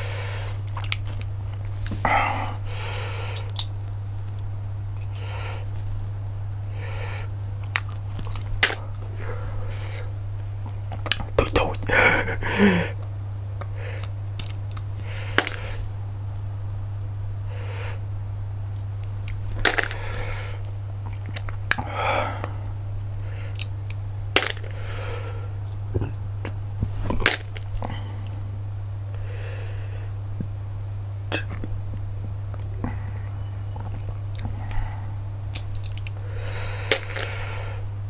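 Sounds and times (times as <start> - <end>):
sucking and chewing: 0.0 - 2.0, 3.2 - 5.9, 7.6 - 11.9, 18.8 - 24.8, 33.7 - 37.5
steady low hum: 0.0 - 38.0.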